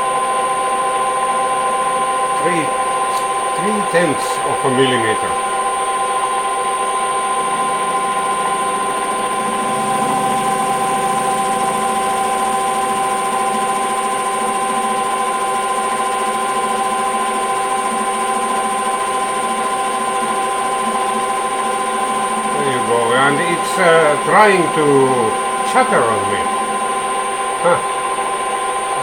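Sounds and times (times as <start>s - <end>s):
lathe running noise: 0.0s - 29.0s.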